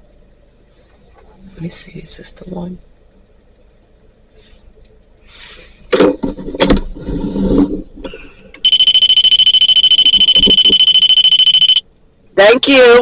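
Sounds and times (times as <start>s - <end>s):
rapid pulsing electronic alarm: 8.6s - 11.8s.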